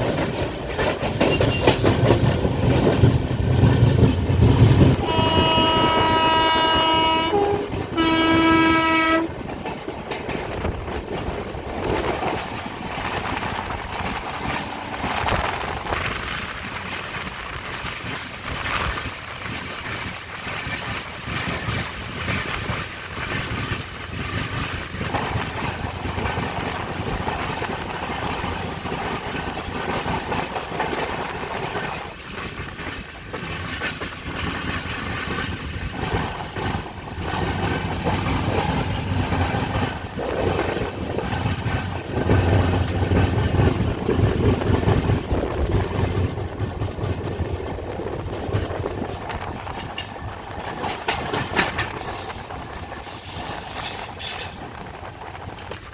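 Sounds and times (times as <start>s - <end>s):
train wheels rumbling on rails: 0.0s - 55.9s.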